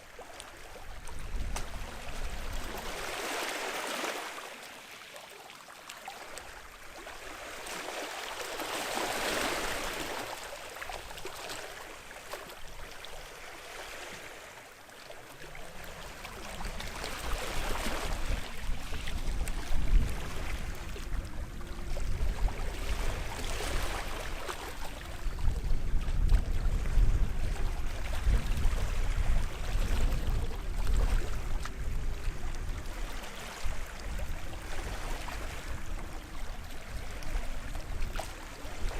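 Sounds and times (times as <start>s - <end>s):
small waves washing onto shore: 0.0s - 38.9s
low uneven rumble: 15.4s - 38.9s.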